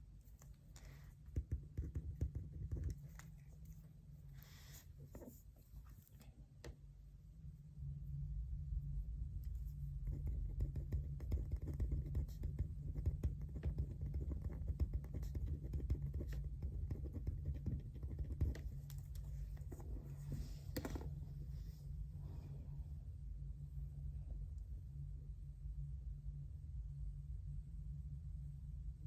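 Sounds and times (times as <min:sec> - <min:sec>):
steady low hum: 0:00.0 - 0:29.0
small clicks and scratches: 0:00.2 - 0:03.9, 0:09.4 - 0:21.1.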